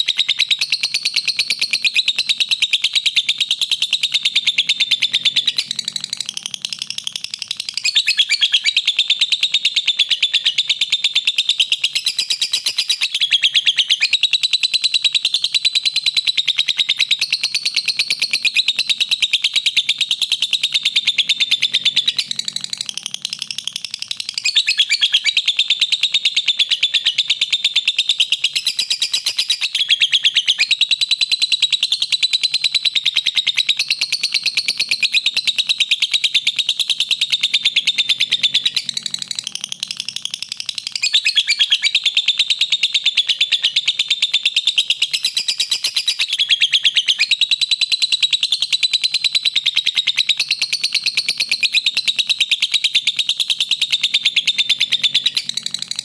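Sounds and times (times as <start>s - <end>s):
lovebird chattering song: 0.0s - 56.0s.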